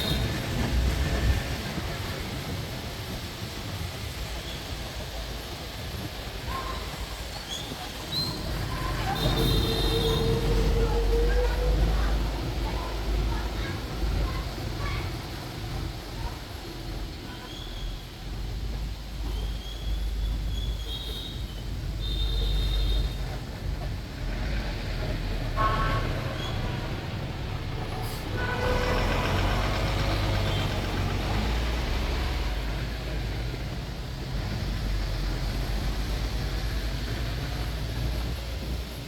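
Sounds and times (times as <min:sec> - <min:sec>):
bus engine and road rumble: 0:00.0 - 0:39.0
horn-like tones: 0:09.1 - 0:12.2, 0:28.3 - 0:29.7.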